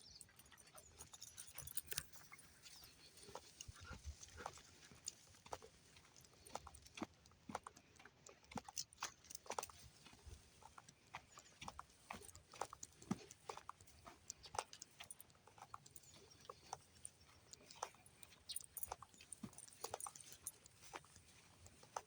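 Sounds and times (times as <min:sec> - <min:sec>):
footsteps of person and dogs: 0:00.0 - 0:22.0.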